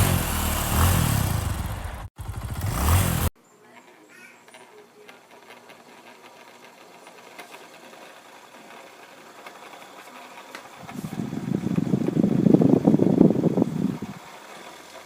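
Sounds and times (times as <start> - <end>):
electric fan running: 0.0 - 3.3, 10.8 - 14.5
loud mechanical rattle: 0.0 - 3.3.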